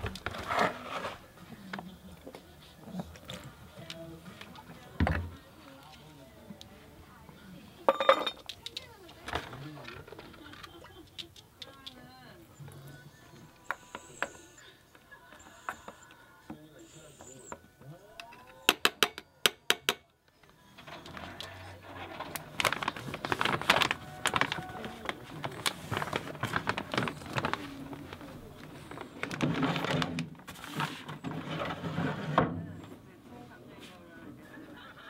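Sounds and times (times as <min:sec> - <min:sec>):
paper bag crinkling: 0:00.0 - 0:01.3, 0:20.8 - 0:31.6
kibble and spoon clinking in bowl: 0:07.9 - 0:08.5.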